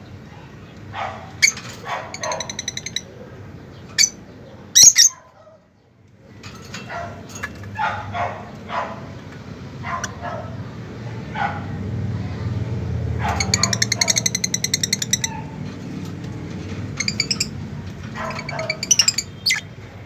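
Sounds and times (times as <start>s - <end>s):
bark-like animal calls: 0.4s - 3.1s, 4.8s - 5.7s, 6.9s - 9.2s, 9.8s - 11.9s, 13.1s - 15.7s, 18.1s - 19.6s.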